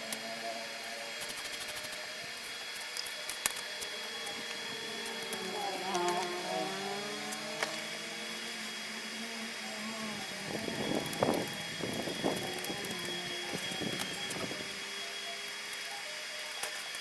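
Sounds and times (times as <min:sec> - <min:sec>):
motor whining: 0:00.0 - 0:17.0
rapid ticks: 0:10.2 - 0:14.8.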